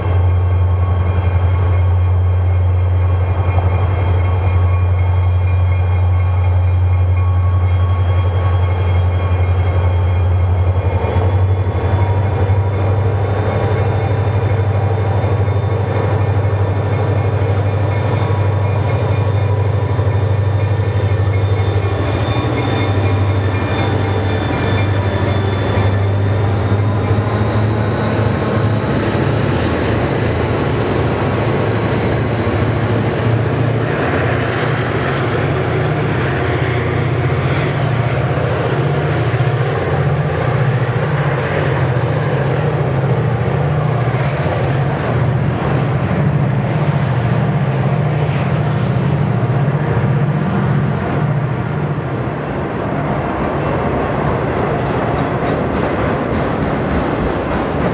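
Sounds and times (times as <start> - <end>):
high steady tones: 0.0 - 46.3
diesel locomotive engine drone: 0.0 - 57.9.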